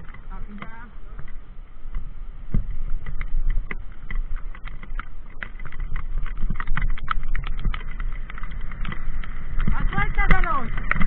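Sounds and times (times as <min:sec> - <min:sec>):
bike rattling and tyres striking stones: 0:00.0 - 0:11.0
bike rumbling over rough ground: 0:00.0 - 0:11.0.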